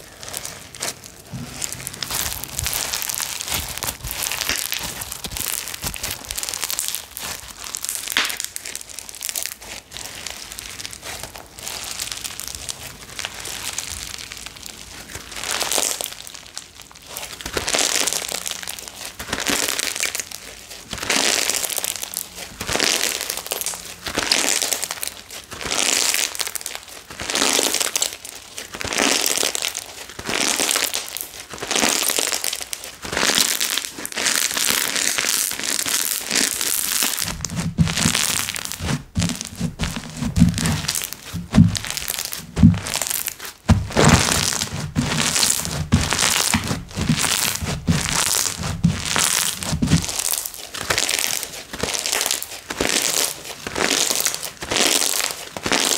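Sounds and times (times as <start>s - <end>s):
slime crackling and crinkling: 0.0s - 55.9s
slime squashing thuds: 0.4s - 8.5s, 36.7s - 51.1s.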